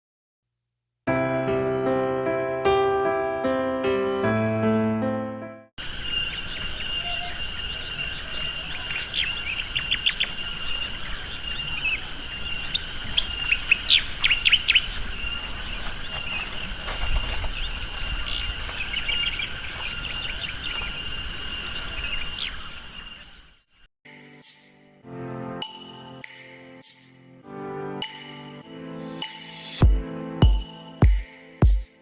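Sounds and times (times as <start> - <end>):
piano tune: 1.1 - 5.7, 24.1 - 32.0
insects droning: 5.8 - 24.7.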